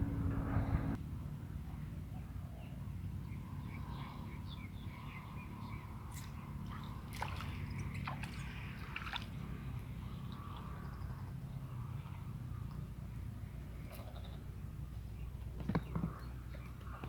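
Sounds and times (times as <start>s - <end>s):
low rumble: 0.0s - 1.1s.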